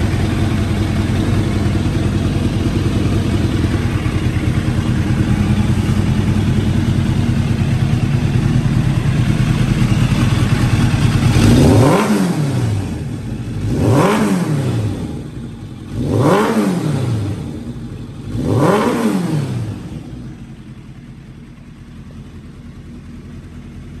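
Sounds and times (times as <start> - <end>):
engine throttle blips: 0.0 - 20.6
motorcycle engine idling: 0.0 - 24.0.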